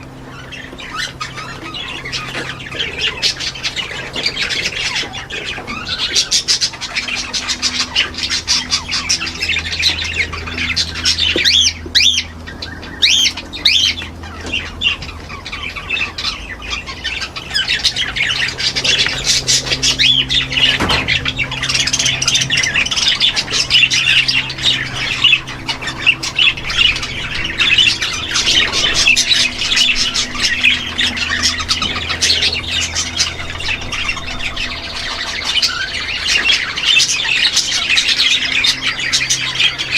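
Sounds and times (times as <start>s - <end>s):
birds squawking and chattering: 0.0s - 39.9s
faint low hum: 0.0s - 39.9s.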